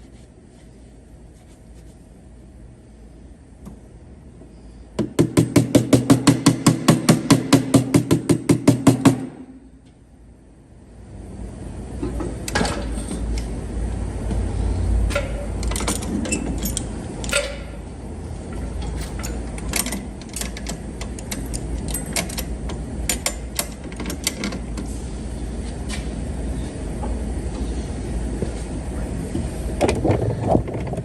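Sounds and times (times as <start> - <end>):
tools tapping against metal: 15.1 - 17.8, 18.8 - 24.6.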